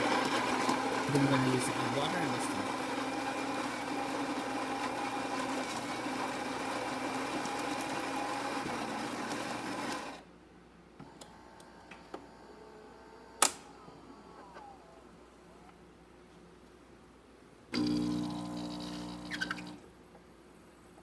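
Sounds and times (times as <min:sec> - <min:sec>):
espresso machine motor running: 0:00.0 - 0:10.2, 0:17.8 - 0:19.8.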